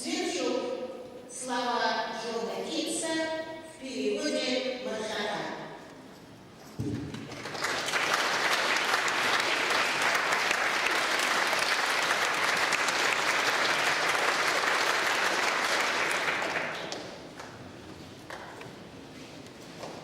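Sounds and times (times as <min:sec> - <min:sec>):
audience applauding: 0:07.0 - 0:18.6.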